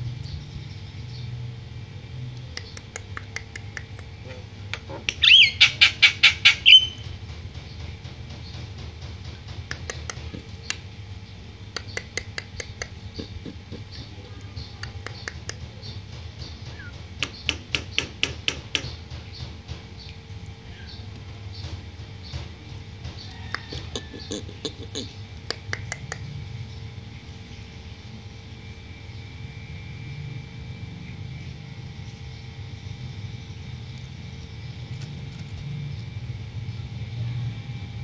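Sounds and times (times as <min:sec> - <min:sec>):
myna harsh clicking calls: 0:02.4 - 0:07.2, 0:09.6 - 0:10.9, 0:11.7 - 0:19.2, 0:23.2 - 0:26.3.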